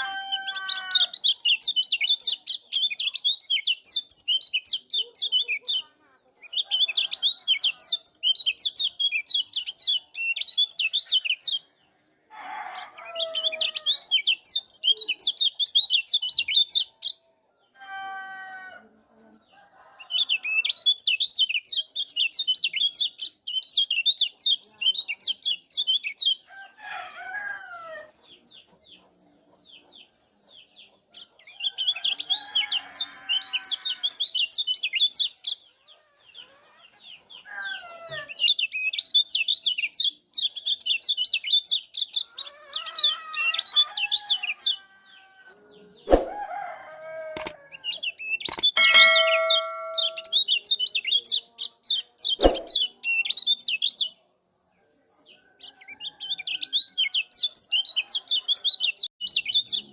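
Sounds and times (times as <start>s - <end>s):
birds giving high chip calls: 0.0s - 5.8s, 47.4s - 51.0s
lower sliding bird calls: 46.1s - 46.4s, 52.4s - 52.9s.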